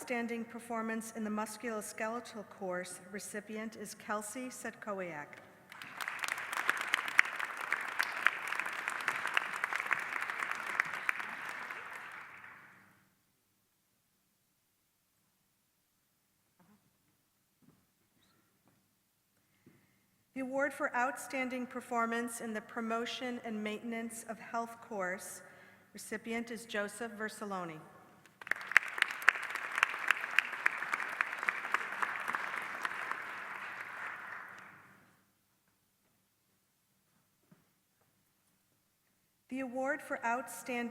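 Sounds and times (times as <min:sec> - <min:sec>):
close sharp claps: 0:05.3 - 0:12.9, 0:28.2 - 0:35.0
audience applauding: 0:05.7 - 0:12.8, 0:28.4 - 0:34.9.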